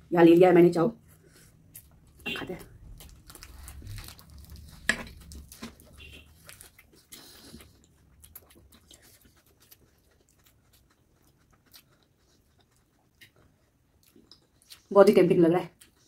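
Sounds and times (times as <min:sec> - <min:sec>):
crunchy lettuce chewing: 0:02.8 - 0:13.3.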